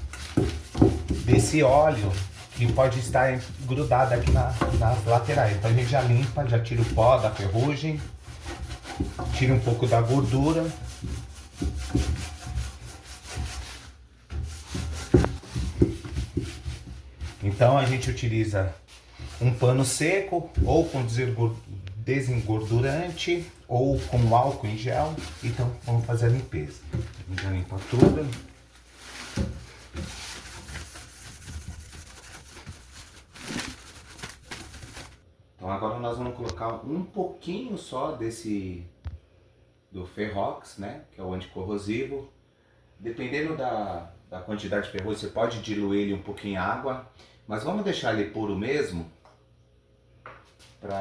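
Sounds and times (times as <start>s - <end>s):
cloth rubbing on rusty metal: 0.0s - 35.2s.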